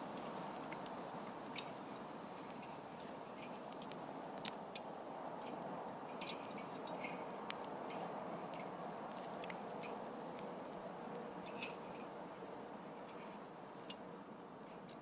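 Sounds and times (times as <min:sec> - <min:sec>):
campfire flames hissing: 0:00.0 - 0:14.9
firewood crackling and popping: 0:00.0 - 0:15.0.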